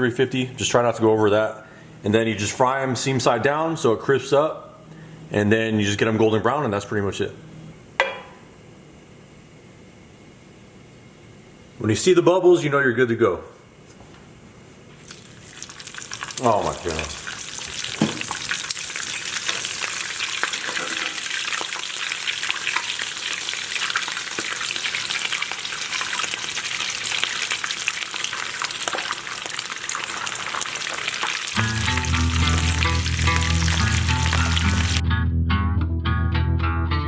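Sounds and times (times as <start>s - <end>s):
tacos deep-frying in oil: 14.9s - 35.0s
music with bass line: 31.6s - 37.0s.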